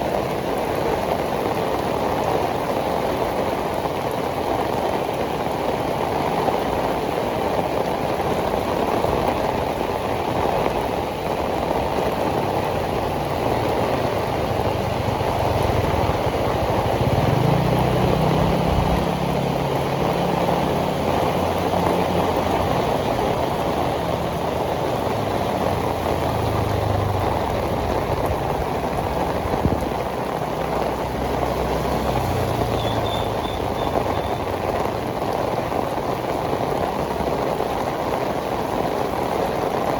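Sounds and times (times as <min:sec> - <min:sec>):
heavy rain on pavement: 0:00.0 - 0:39.9
vehicle engine hum: 0:12.2 - 0:35.9.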